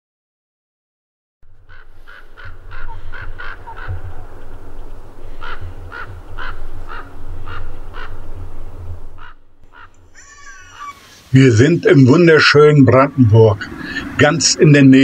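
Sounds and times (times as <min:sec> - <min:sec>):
steady low rumble: 0:01.4 - 0:10.8
birds harsh calls: 0:01.5 - 0:11.3.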